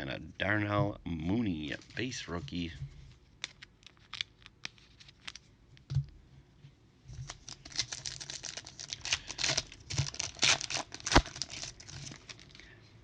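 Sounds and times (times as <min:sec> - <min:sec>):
foil wrapper crinkling and tearing: 0:03.4 - 0:05.5, 0:07.2 - 0:12.6.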